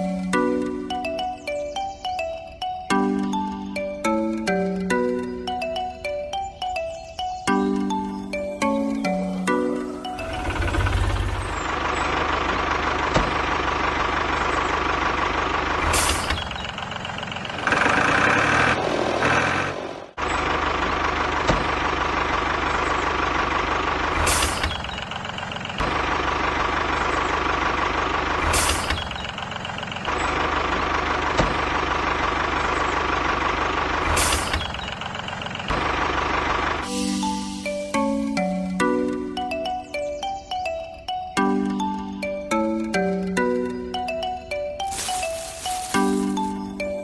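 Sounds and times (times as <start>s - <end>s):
rattling mechanical sound: 10.0s - 19.6s, 20.2s - 37.4s.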